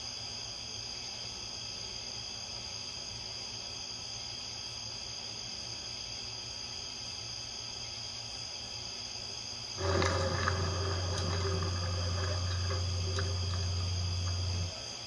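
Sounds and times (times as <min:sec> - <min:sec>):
crickets chirring: 0:00.0 - 0:15.0
faint crackling: 0:09.8 - 0:14.8
low steady hum: 0:09.8 - 0:14.9.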